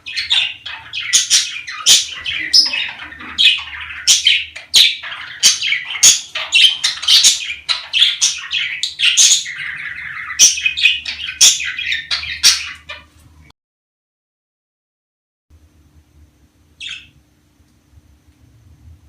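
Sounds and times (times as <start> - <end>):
budgerigars chattering: 0.0 - 13.1, 16.8 - 17.1.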